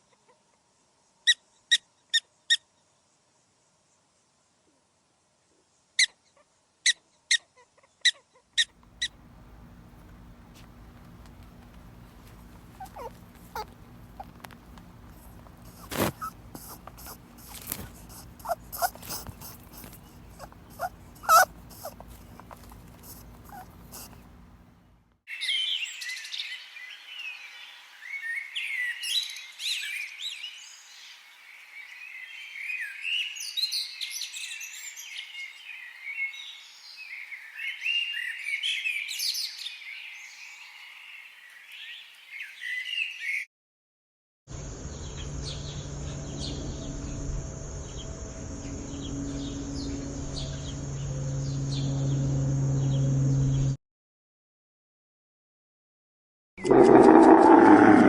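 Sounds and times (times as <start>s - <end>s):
small birds chirping: 8.6s - 24.6s
steady high buzz: 44.6s - 53.8s.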